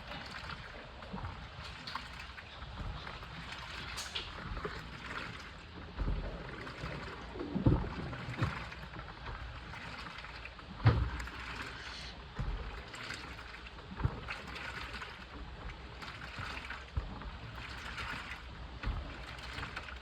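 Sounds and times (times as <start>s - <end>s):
washing machine water sloshing: 0.0s - 20.0s.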